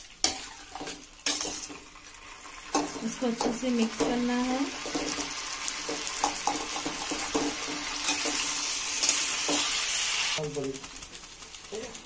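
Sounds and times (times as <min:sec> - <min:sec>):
food sizzling in a pan: 0:00.0 - 0:12.0
metal spatula scraping pan: 0:00.2 - 0:01.8, 0:02.6 - 0:10.1.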